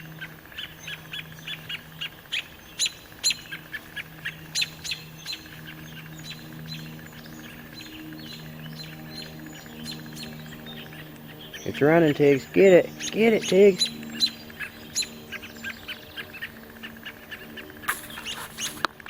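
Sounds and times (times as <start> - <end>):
mockingbird harsh alarm calls: 17.9 - 18.8.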